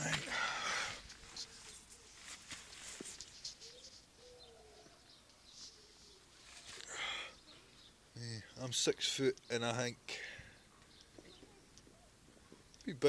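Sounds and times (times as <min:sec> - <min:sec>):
tent fabric rustling: 0:01.1 - 0:04.1, 0:05.5 - 0:06.9
bird cooing faintly: 0:03.4 - 0:07.6.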